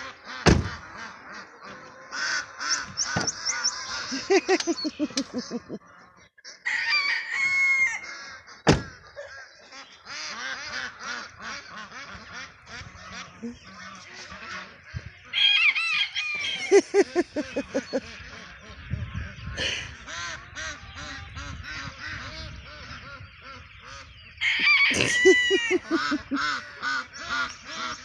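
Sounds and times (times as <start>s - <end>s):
ducks quacking: 0.0s - 6.6s, 7.9s - 28.0s
poultry calling: 0.0s - 28.0s.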